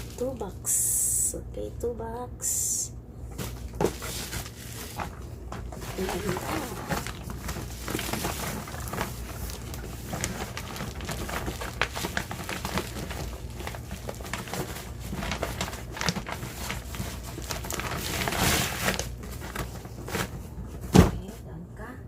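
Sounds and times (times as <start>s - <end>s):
packaging rustling: 0.0s - 0.4s, 3.3s - 20.9s.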